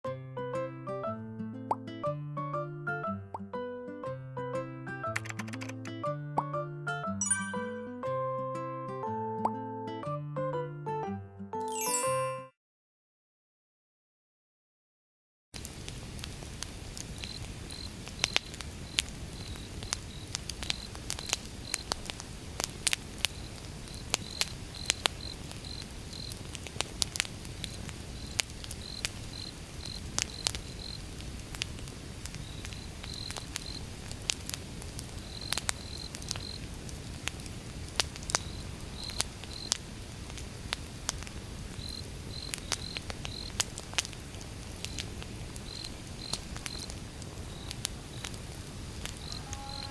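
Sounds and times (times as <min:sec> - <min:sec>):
low rumble of flame: 0:15.6 - 0:49.9
wood fire crackling: 0:15.6 - 0:49.9
cricket chirping: 0:17.2 - 0:21.9, 0:23.3 - 0:26.5, 0:27.6 - 0:31.1, 0:32.4 - 0:33.9, 0:35.2 - 0:36.6, 0:38.3 - 0:39.8, 0:41.8 - 0:43.6, 0:44.9 - 0:48.3, 0:49.0 - 0:49.9.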